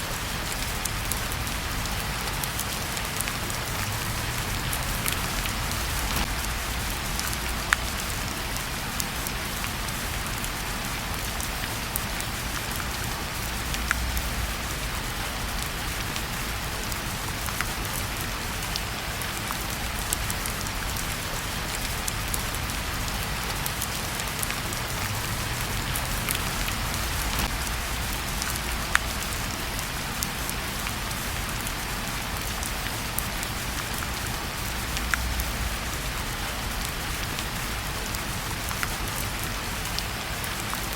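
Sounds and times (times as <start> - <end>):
crackling fireplace: 0.0 - 40.9
steady rain hiss: 0.0 - 40.9.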